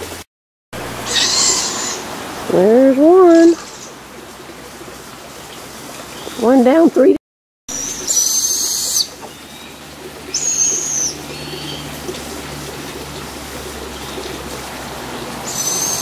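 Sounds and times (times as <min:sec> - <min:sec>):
young hawks whistled calls: 0:01.0 - 0:02.0, 0:07.7 - 0:09.2, 0:10.3 - 0:11.8, 0:15.5 - 0:16.0.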